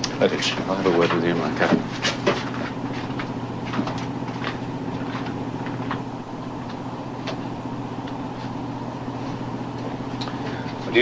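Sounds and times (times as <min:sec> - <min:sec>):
boat engine drone: 0:00.0 - 0:11.0.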